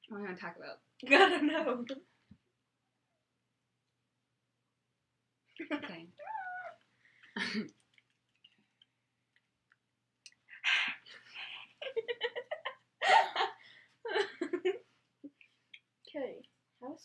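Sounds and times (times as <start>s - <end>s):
young women giggling and laughing: 11.5s - 14.8s.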